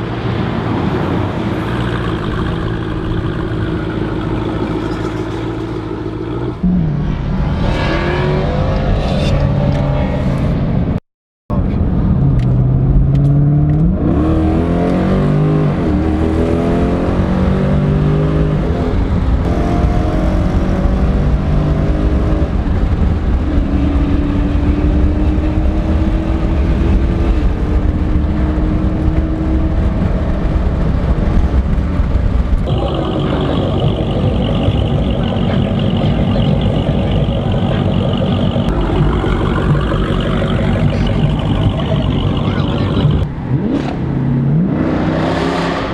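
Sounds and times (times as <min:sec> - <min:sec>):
car engine revving loudly: 0:32.6 - 0:45.9.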